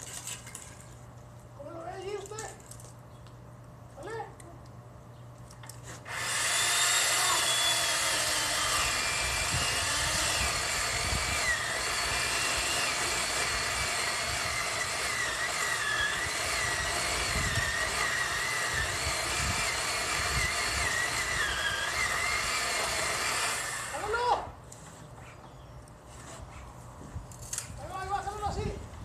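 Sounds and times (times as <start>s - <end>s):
chainsaw cutting wood: 5.9s - 24.1s.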